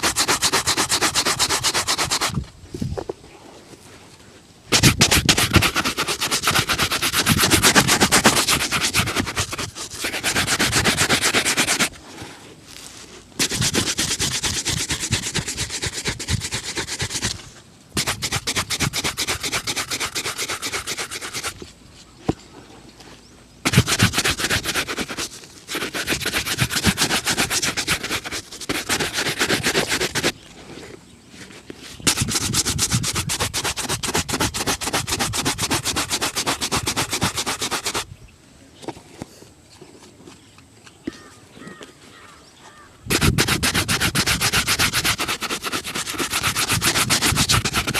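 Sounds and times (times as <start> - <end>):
brush rubbing leather shoe: 0.0 - 2.5, 4.7 - 12.0, 12.7 - 17.4, 18.0 - 21.7, 23.6 - 30.4, 31.4 - 38.0, 43.1 - 47.9.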